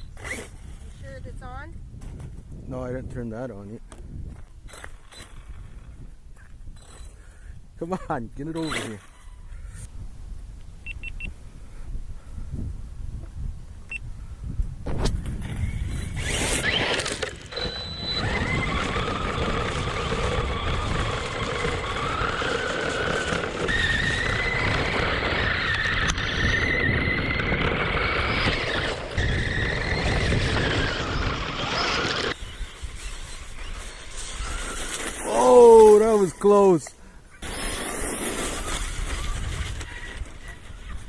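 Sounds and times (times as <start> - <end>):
electric motor whining: 15.4 - 35.5
tyres rumbling on pavement: 16.2 - 32.4.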